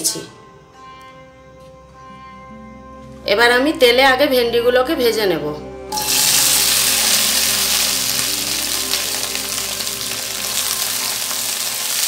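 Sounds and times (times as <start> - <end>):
okra sizzling in hot oil: 5.9 - 12.0.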